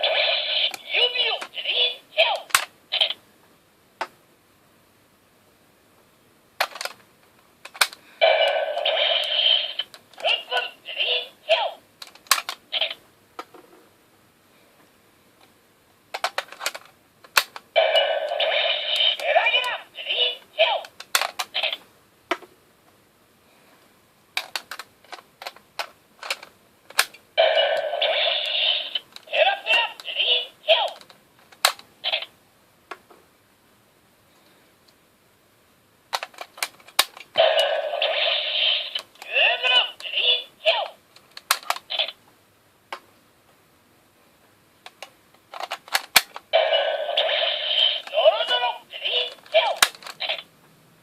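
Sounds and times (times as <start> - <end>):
hard plastic toy clicks: 7.6 - 8.0, 12.0 - 12.6, 16.2 - 17.6, 20.8 - 21.6, 24.4 - 27.2, 30.9 - 31.9, 36.1 - 37.3, 41.2 - 42.0, 44.8 - 46.4, 49.3 - 50.3.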